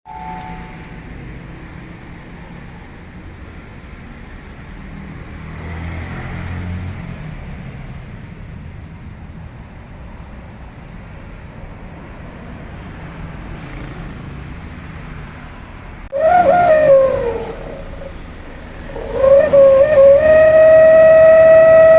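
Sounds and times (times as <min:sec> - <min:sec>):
loud exhaust howl: 0:00.1 - 0:03.2, 0:16.1 - 0:21.9.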